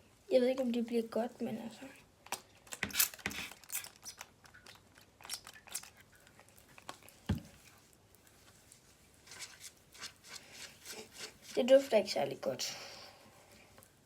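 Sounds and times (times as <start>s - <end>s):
hands squishing slime: 2.3s - 7.8s.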